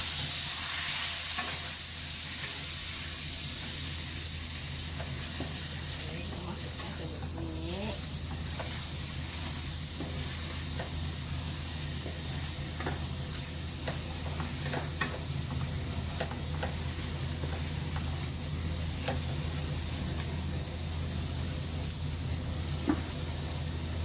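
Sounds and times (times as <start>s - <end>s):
liver sizzling in a wok: 0.0s - 24.0s
steady low hum: 2.5s - 24.0s
wooden spatula scraping a pan: 8.0s - 18.3s.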